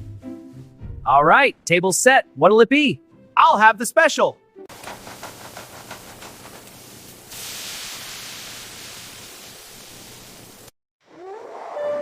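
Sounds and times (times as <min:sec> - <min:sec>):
steady hissing: 0:04.7 - 0:10.7.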